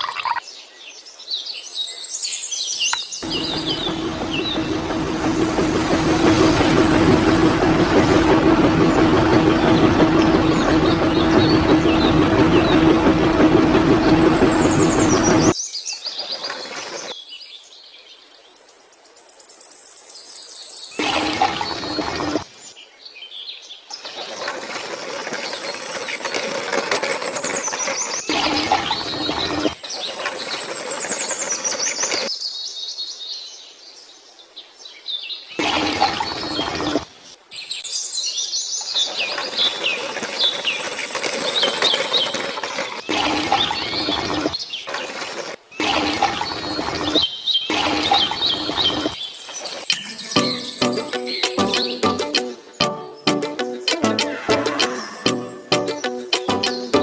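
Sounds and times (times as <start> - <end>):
birds chirping: 2.8 - 17.2, 20.9 - 22.9, 23.9 - 32.6, 35.6 - 57.0
loud burst of noise: 3.2 - 15.6
loud rumbling noise: 3.2 - 15.6, 21.0 - 22.4, 28.3 - 29.8, 45.8 - 49.2
small birds chirping: 37.6 - 53.4.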